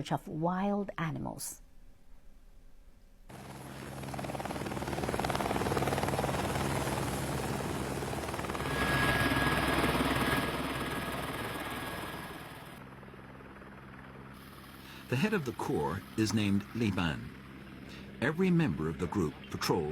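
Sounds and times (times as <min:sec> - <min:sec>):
motor throbbing: 0:03.3 - 0:12.8.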